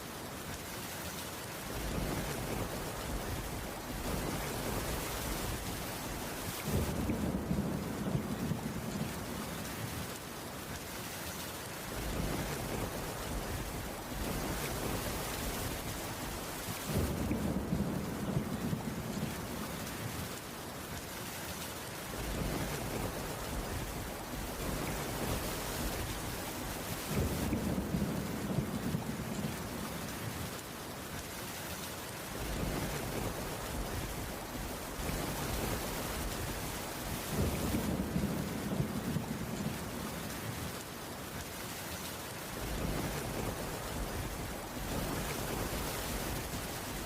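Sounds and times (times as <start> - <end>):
heavy rain falling: 0.0 - 47.0.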